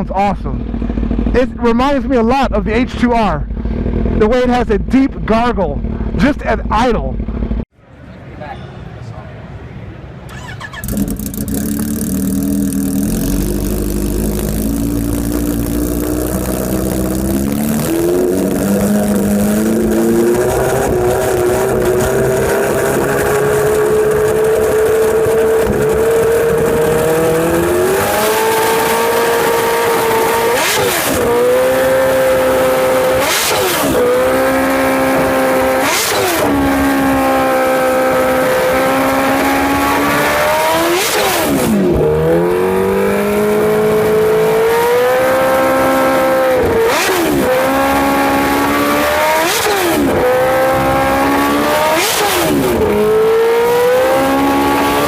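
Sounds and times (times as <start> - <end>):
motorcycle engine revving: 0.0 - 7.7, 10.2 - 55.0.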